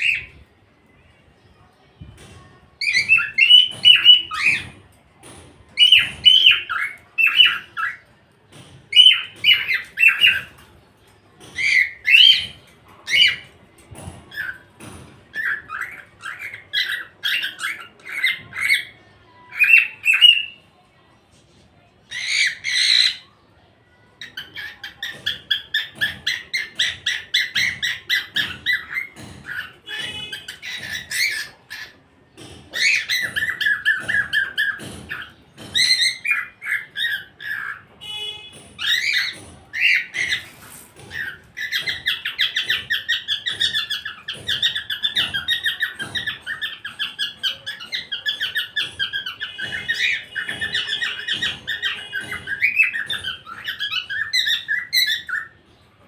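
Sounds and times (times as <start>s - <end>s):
cockatiel chirping and squawking: 2.8s - 4.8s, 5.8s - 8.1s, 8.9s - 10.6s, 11.4s - 13.6s, 14.3s - 14.7s, 15.3s - 18.9s, 22.1s - 23.2s, 24.2s - 32.0s, 32.7s - 55.5s
cockatiel chattering: 8.9s - 10.6s, 11.4s - 20.6s, 22.1s - 23.2s, 24.2s - 37.9s, 38.5s - 55.6s.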